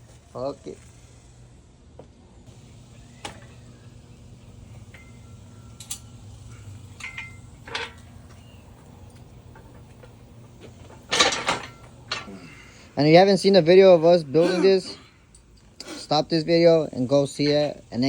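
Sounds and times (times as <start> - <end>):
low steady hum: 0.0 - 18.0
metal tools clinking: 4.8 - 13.6, 14.8 - 15.8
metal rattling clatter: 4.9 - 12.7.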